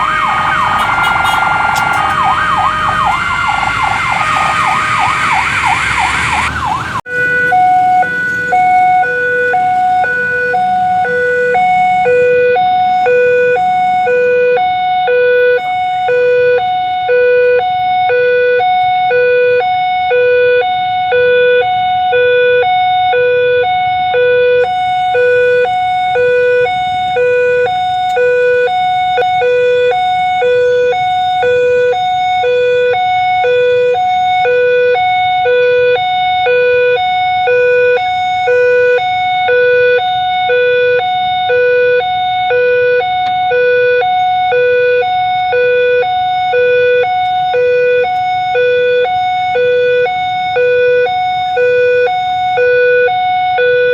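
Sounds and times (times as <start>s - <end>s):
level crossing two-tone alarm: 0.0s - 53.9s
low hum of road traffic: 0.0s - 53.9s.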